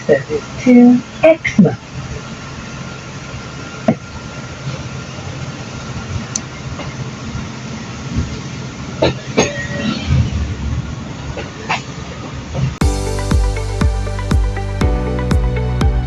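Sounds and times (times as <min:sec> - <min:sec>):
faint whine: 0:00.0 - 0:12.8
train rumble: 0:00.0 - 0:14.1.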